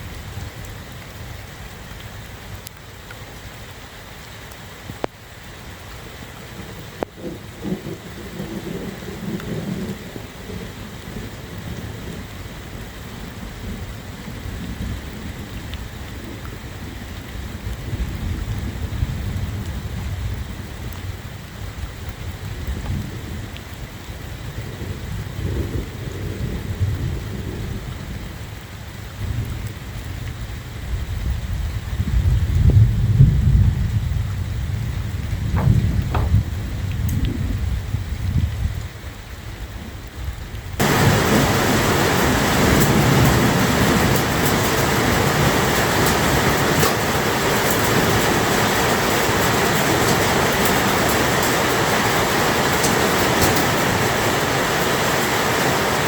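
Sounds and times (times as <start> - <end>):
heavy rain: 0.0 - 56.0
rolling thunder rumbles: 6.7 - 23.5, 30.9 - 56.0.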